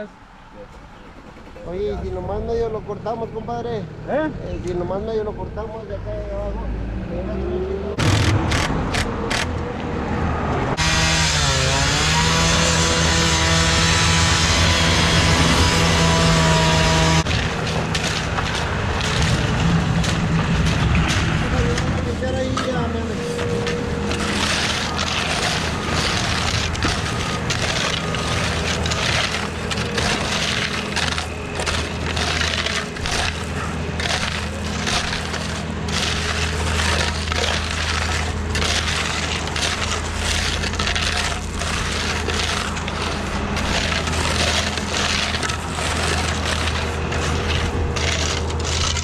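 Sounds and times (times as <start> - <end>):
engine running: 5.2 - 49.0
scraping and crunching: 8.0 - 9.6, 10.8 - 49.0.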